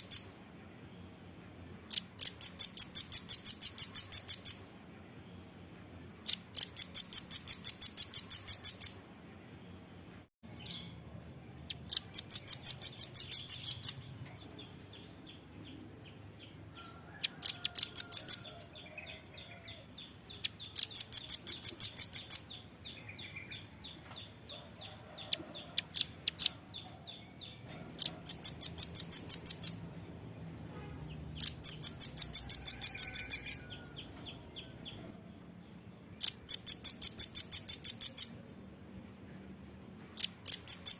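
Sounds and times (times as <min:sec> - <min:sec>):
nuthatch chipping calls: 0:11.7 - 0:14.0, 0:17.2 - 0:23.4, 0:25.3 - 0:26.9, 0:28.0 - 0:29.8, 0:31.3 - 0:34.1, 0:36.2 - 0:38.4, 0:40.2 - 0:40.9.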